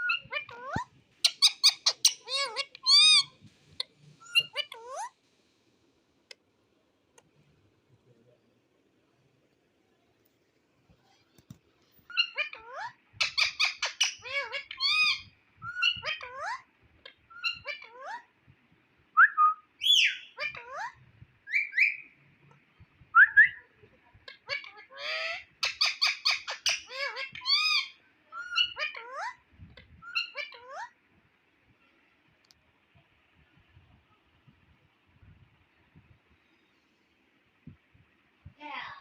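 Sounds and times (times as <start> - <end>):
parakeet whistling and calling: 0.0 - 3.4, 4.2 - 5.1, 12.1 - 16.6, 17.3 - 18.0, 19.2 - 22.1, 24.4 - 29.4, 30.0 - 30.9.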